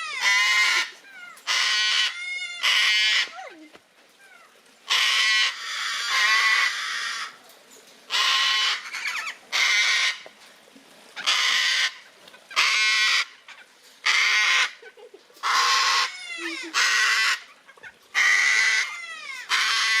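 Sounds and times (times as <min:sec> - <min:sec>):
cockatoo screeching: 0:15.4 - 0:20.0.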